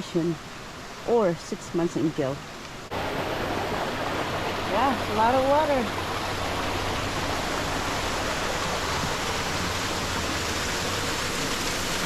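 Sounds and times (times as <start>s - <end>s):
waterfall rushing: 2.8s - 12.0s.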